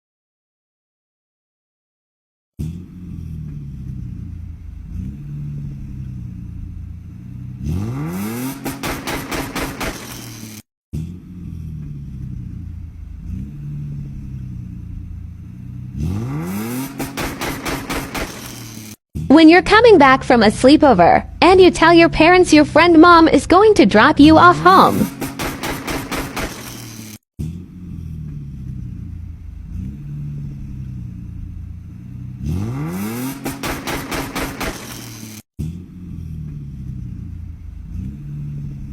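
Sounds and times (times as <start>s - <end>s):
car engine revving hard: 2.6s - 19.0s, 24.2s - 38.9s
car engine idling: 3.4s - 7.6s, 8.4s - 10.4s, 11.7s - 16.0s, 16.9s - 18.9s, 24.3s - 27.0s, 28.2s - 32.4s, 33.2s - 35.3s, 36.4s - 38.9s
sharp exhaust cracks: 3.4s - 10.6s, 11.5s - 38.8s.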